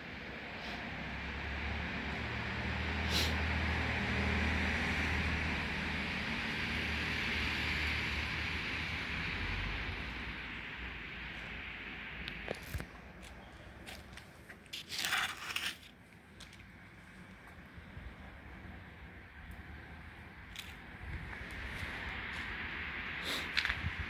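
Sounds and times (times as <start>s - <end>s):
vehicle passing: 0.4s - 12.4s.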